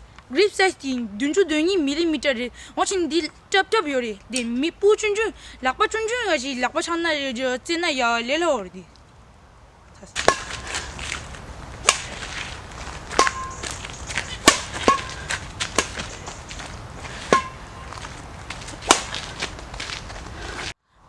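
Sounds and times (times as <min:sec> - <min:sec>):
racket hitting shuttlecock: 0:10.2 - 0:20.7
racket strings ringing ping: 0:13.1 - 0:16.1, 0:17.3 - 0:18.0.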